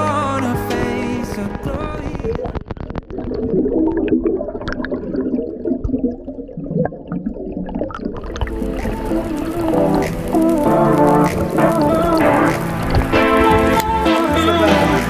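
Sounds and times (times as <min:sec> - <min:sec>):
song: 0:00.0 - 0:02.4, 0:08.4 - 0:15.0
underwater bubbles gurgling: 0:01.7 - 0:15.0
clicks: 0:08.3 - 0:14.0.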